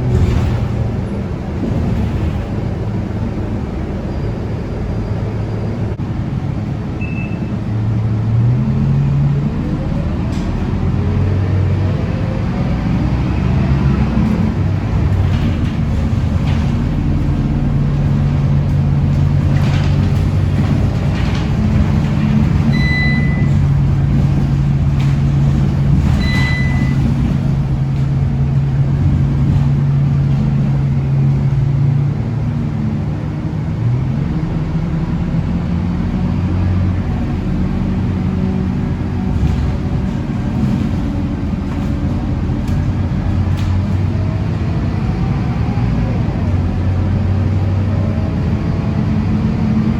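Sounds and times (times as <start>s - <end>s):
bus diesel engine running: 0.0s - 49.9s
short electronic beeps: 7.0s - 7.5s, 22.7s - 23.5s, 26.2s - 27.0s.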